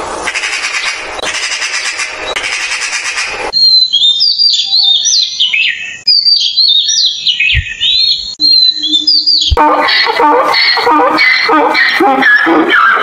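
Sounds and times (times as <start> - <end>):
songbird singing: 3.5 - 13.0.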